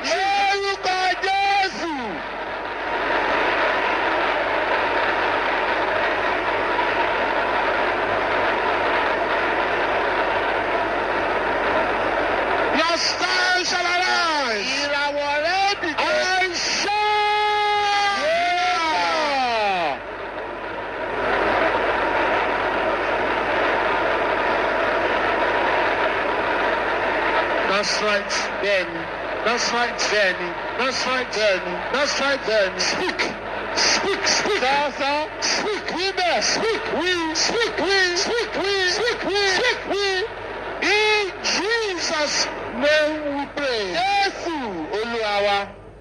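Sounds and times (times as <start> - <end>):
congregation praying aloud: 0.0 - 6.6, 12.7 - 20.1, 27.4 - 45.8.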